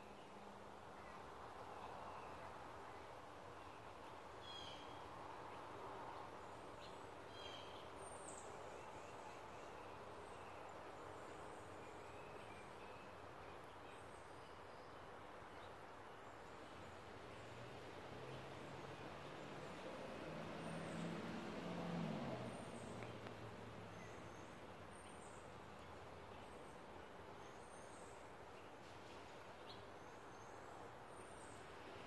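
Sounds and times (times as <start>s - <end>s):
small birds chirping: 22.5s - 32.0s.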